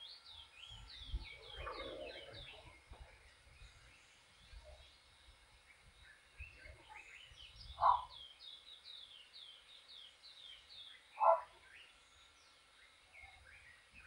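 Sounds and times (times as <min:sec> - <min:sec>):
short low bird calls: 0:00.6 - 0:08.6, 0:10.4 - 0:12.3.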